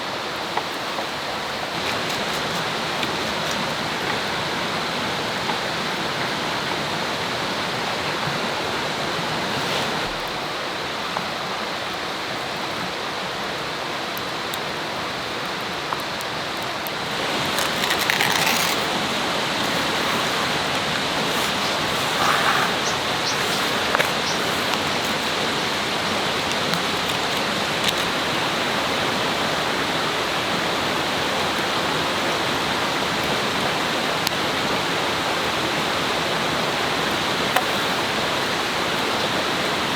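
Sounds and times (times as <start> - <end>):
river water flowing: 0.0 - 39.9
faint clicks: 15.9 - 28.2.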